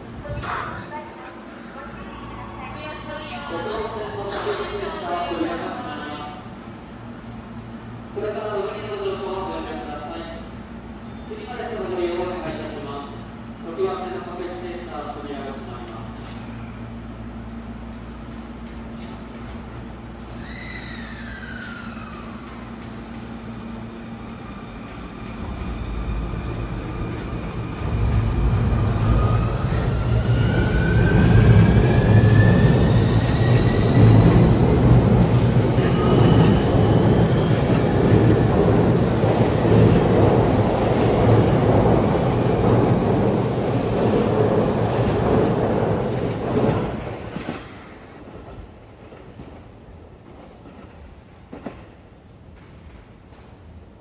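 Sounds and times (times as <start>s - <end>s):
train wheels rumbling: 18.0s - 53.6s.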